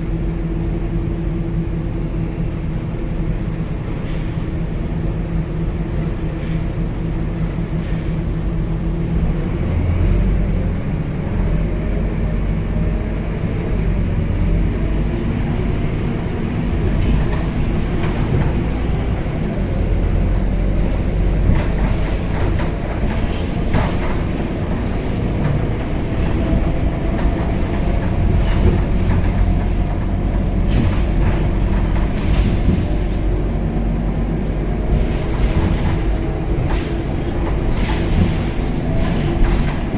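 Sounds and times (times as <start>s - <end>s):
bus engine and road rumble: 0.0s - 39.9s
rattles and knocks from bus body: 12.8s - 39.9s.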